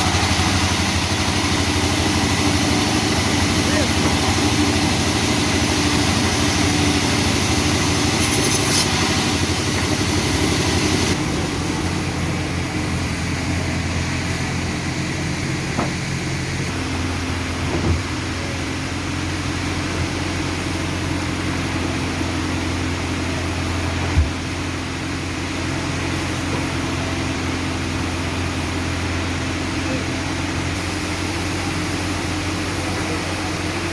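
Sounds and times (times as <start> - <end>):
hiss: 0.0 - 18.1, 30.4 - 33.9
sawmill engine humming: 0.0 - 33.9.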